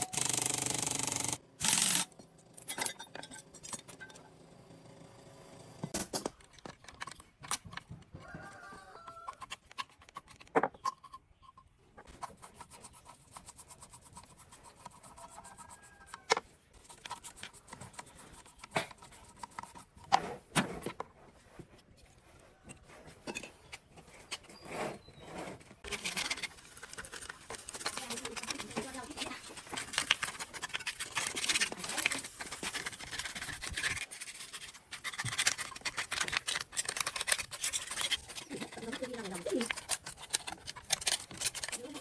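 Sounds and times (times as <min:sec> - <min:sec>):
metal parts clicking and knocking: 0:00.0 - 0:04.2, 0:05.9 - 0:08.0, 0:25.8 - 0:42.0
rubbing on metal: 0:12.1 - 0:16.2, 0:24.6 - 0:42.0.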